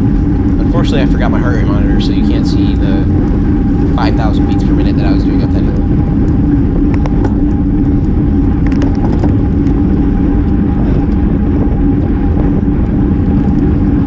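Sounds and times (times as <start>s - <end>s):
bike tyre and road noise: 0.0s - 14.0s
wind rush on microphone: 0.0s - 14.0s.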